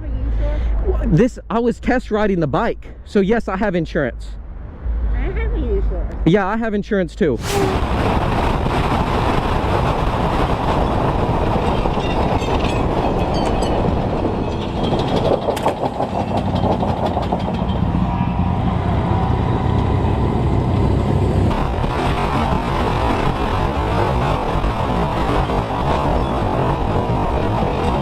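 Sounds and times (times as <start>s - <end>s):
moving vehicle rumble: 7.3s - 28.0s
wind noise: 7.4s - 18.0s, 18.8s - 28.0s.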